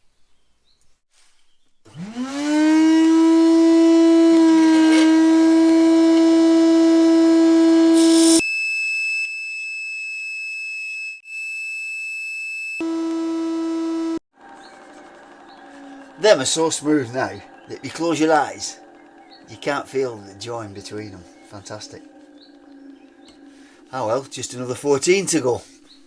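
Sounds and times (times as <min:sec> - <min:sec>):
electric sander whining: 0:01.9 - 0:08.4, 0:12.8 - 0:26.0
thin high-pitched whine: 0:06.2 - 0:08.9.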